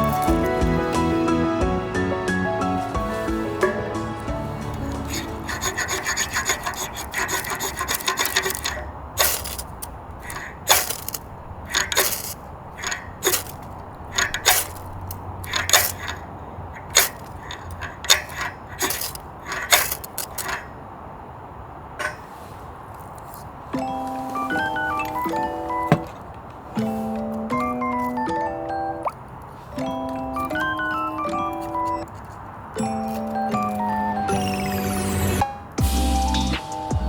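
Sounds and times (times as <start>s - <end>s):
saw cutting wood: 0.0s - 16.2s.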